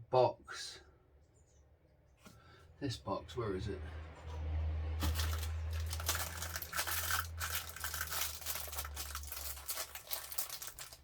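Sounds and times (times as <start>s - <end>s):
packaging rustling and crinkling: 5.0s - 11.0s.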